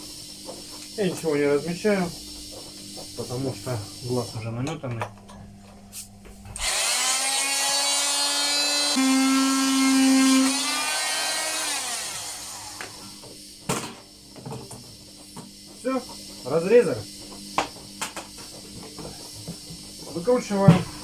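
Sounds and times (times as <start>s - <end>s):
power tool cutting plastic: 6.6s - 13.2s.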